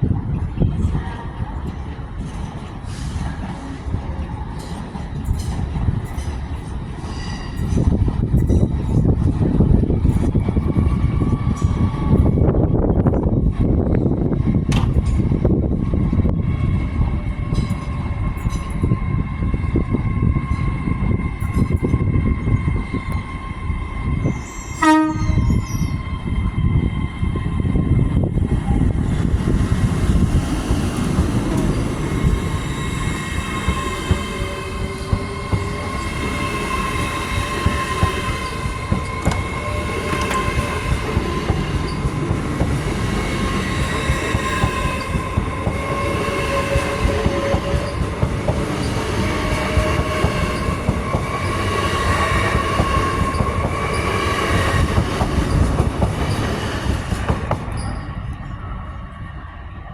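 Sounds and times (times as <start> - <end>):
train rumbling past: 0.0 - 59.9
train wheels squealing: 4.6 - 9.4, 20.4 - 29.1, 30.9 - 58.6.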